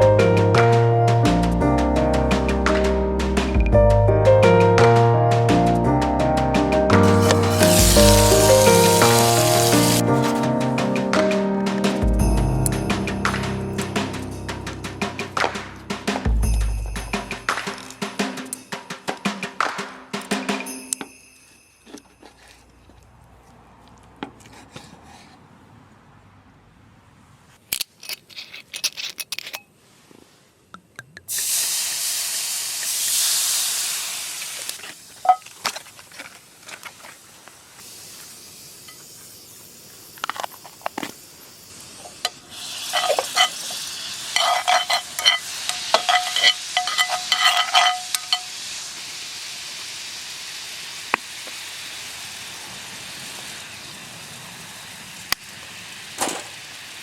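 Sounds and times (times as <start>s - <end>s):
steak sizzling in a frying pan: 7.0s - 10.5s, 31.3s - 35.4s, 37.8s - 57.0s
metal clinking on a pan: 42.9s - 48.5s.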